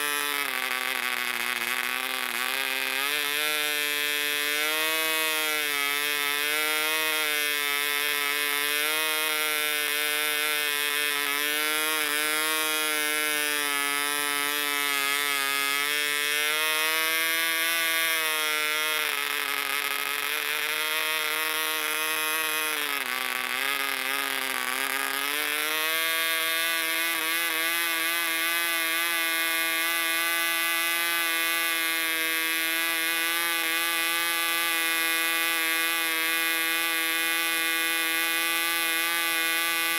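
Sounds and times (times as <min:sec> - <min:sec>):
model engine buzzing: 0:00.0 - 0:39.9.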